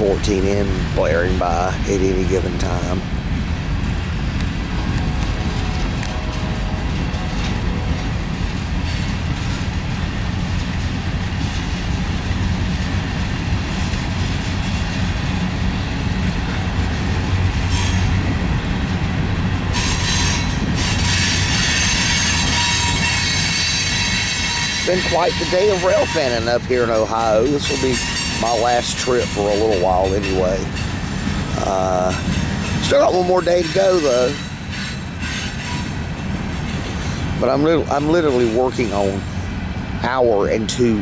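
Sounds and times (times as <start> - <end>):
train wheels rumbling on rail: 0.0 - 41.0
high-pitched wheel squeal: 19.8 - 28.8.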